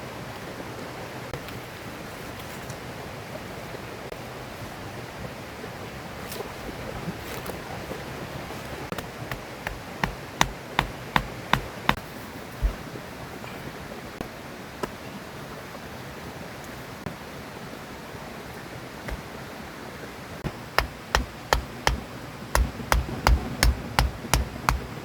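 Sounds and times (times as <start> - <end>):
knife chopping on cutting board: 8.9 - 12.0, 20.8 - 25.0.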